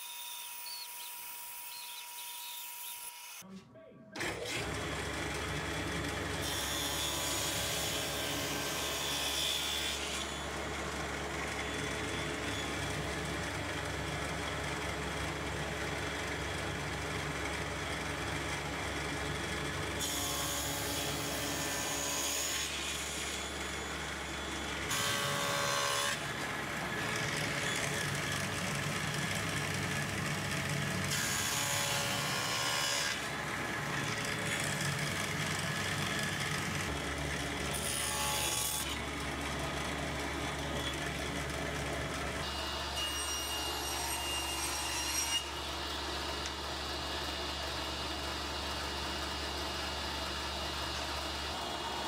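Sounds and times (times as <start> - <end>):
saw blade cutting wood: 0.0 - 3.5, 6.4 - 10.7, 20.0 - 47.4
table saw motor hum: 4.4 - 52.0.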